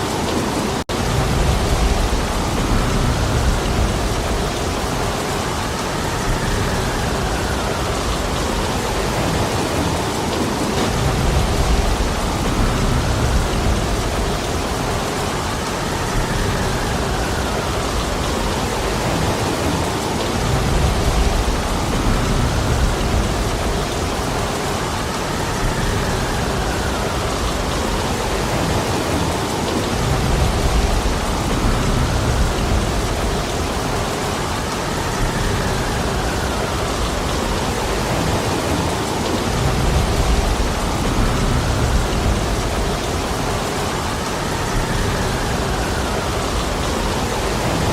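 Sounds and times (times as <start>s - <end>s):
heavy rain pouring: 0.0s - 47.9s
wind: 0.0s - 47.9s.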